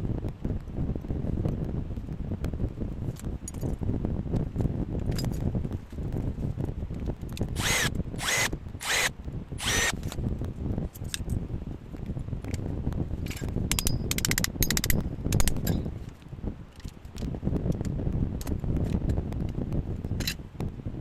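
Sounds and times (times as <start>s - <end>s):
power drill whine: 7.6s - 10.0s.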